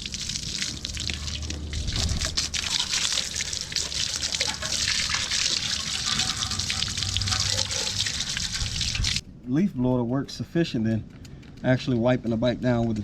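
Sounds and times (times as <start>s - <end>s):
water dripping: 0.0s - 9.2s
water spraying on motorcycle: 0.0s - 9.2s.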